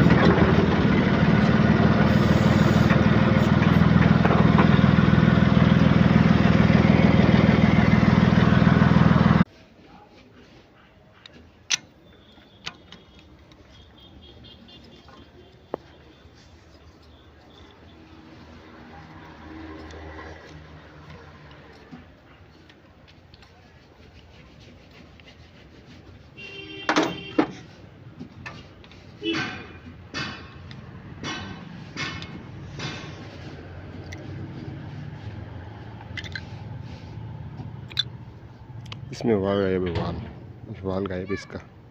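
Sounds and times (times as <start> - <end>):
diesel engine running: 0.0 - 9.5
sharp metallic clicks: 37.8 - 38.2
metal parts clanking: 37.9 - 38.1.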